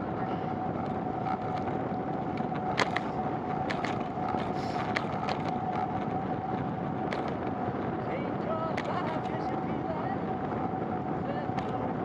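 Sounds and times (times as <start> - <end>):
bicycle rolling on wet road: 0.0 - 8.0
constant thin tone: 0.0 - 12.0.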